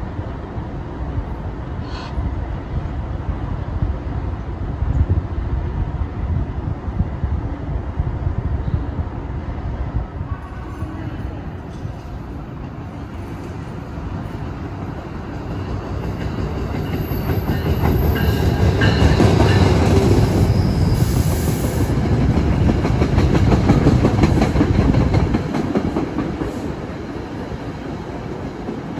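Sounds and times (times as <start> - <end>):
deep train rumble: 0.0 - 28.9
train wheels clicking over rail joints: 14.7 - 27.0.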